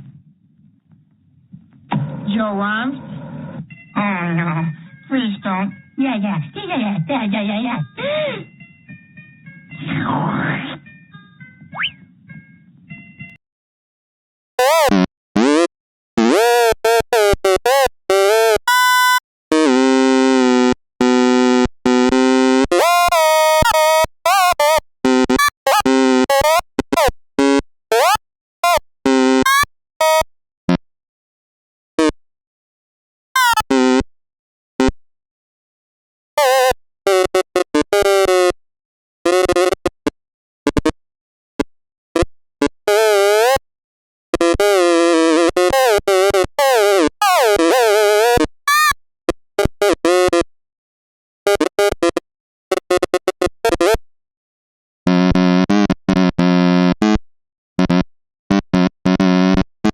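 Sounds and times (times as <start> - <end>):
wavering synth tone: 7.8 - 13.4.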